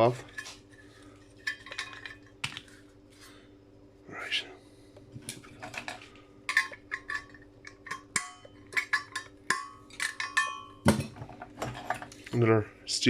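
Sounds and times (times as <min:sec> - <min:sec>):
metal clinking and tapping: 0:05.6 - 0:12.2.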